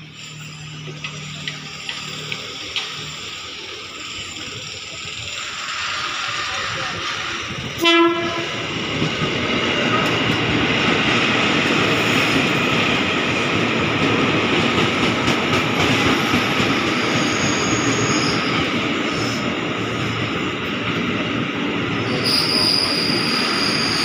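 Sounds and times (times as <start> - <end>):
train wheels rumbling and rattling: 0.0 - 24.0
train horn blast: 7.8 - 8.6
thin high squeal: 22.1 - 24.0.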